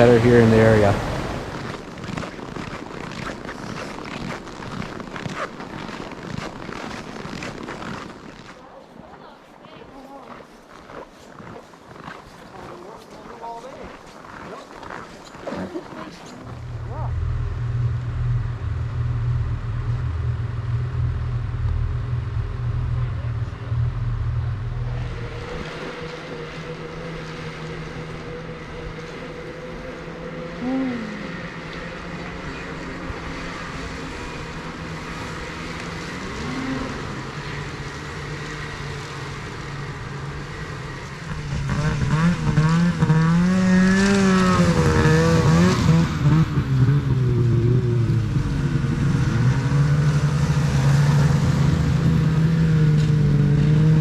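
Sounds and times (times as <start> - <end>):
engine revving: 0.0 - 2.7, 16.2 - 54.0
snowmobile engines running: 0.0 - 54.0.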